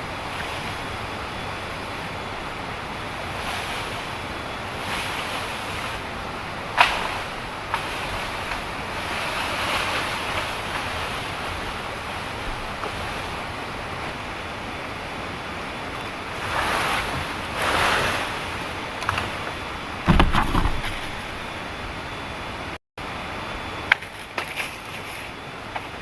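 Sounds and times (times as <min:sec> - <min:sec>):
low knock: 0:20.1 - 0:21.3.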